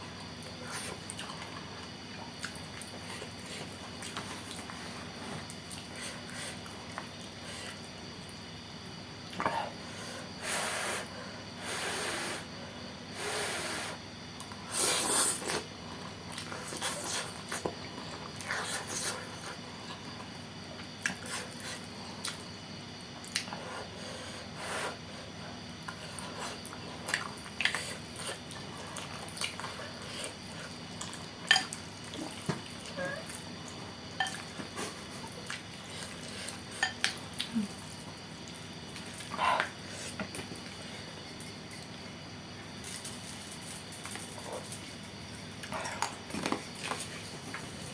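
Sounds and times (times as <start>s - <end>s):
cutlery clinking against bowl: 34.2s - 34.4s.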